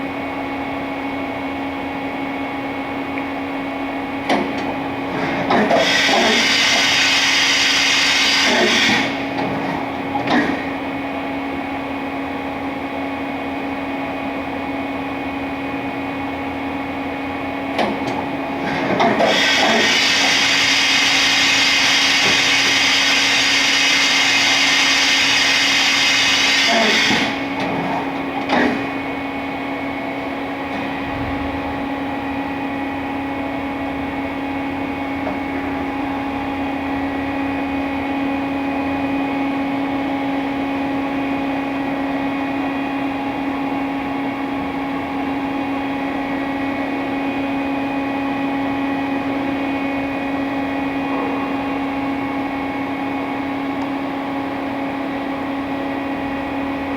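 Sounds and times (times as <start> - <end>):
machine low hum: 0.0 - 56.9
machine high-pitched whir: 5.1 - 10.8, 17.8 - 29.1.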